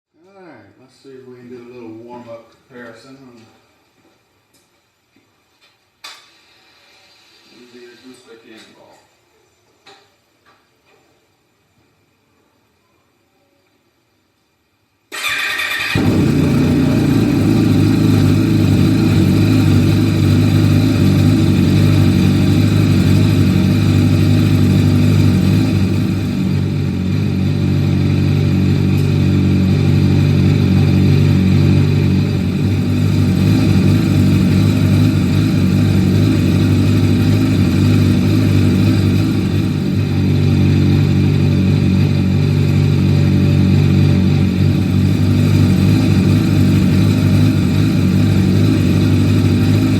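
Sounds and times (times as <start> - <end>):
motorcycle engine idling: 15.2 - 49.9.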